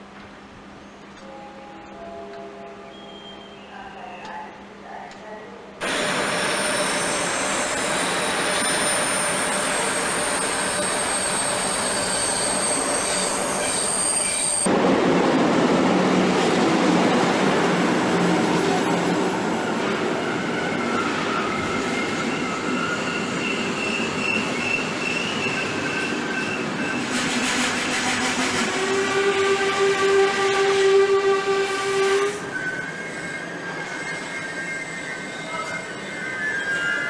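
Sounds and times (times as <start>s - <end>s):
train rolling past: 0.0s - 37.0s
wheel and brake squealing: 6.3s - 14.7s, 20.2s - 27.4s, 32.4s - 37.0s.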